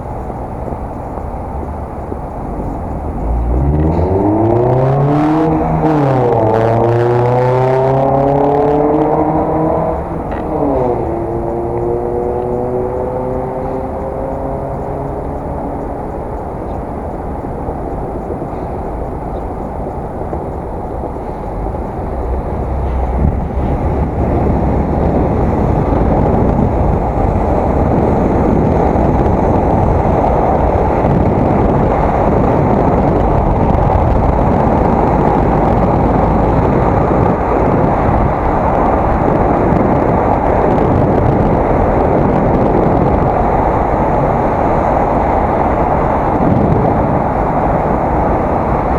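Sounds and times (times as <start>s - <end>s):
wind roaring over microphone: 0.0s - 48.9s.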